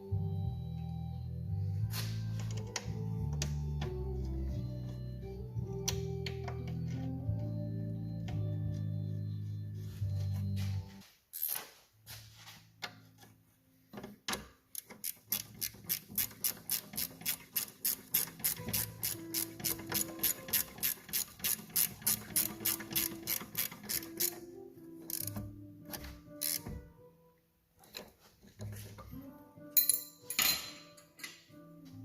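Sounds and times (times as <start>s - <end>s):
ratchet wrench clicking: 14.7s - 24.4s, 25.1s - 25.4s, 26.4s - 26.6s.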